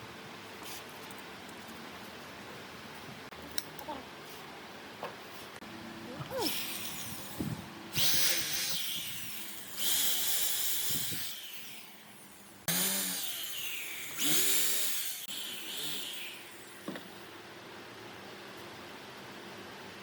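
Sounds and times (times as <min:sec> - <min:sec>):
power tool cutting wood: 0:08.0 - 0:12.0, 0:12.7 - 0:16.8.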